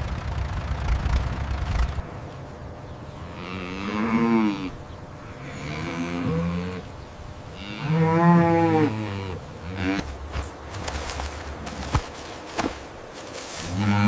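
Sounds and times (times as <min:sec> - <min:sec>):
cattle mooing: 0:03.3 - 0:06.9, 0:07.6 - 0:10.2, 0:13.6 - 0:14.0.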